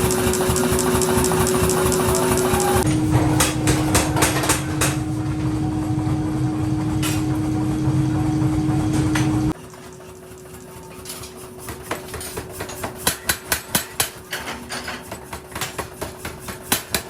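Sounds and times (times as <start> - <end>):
sharp metallic knocks: 0.0 - 6.0
machinery motor hum: 0.0 - 9.6.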